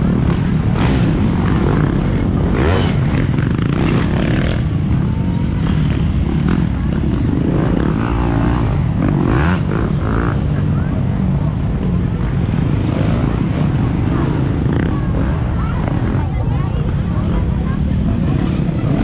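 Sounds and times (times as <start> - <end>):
dirt bike engines running: 0.0 - 19.0.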